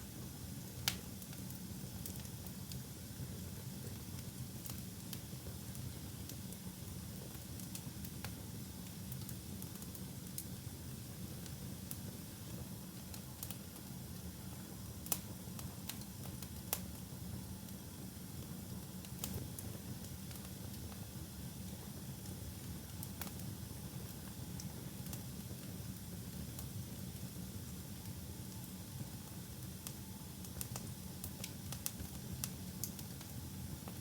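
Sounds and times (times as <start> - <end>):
fire crackling and popping: 13.2 - 13.6, 18.8 - 21.0, 30.5 - 33.3.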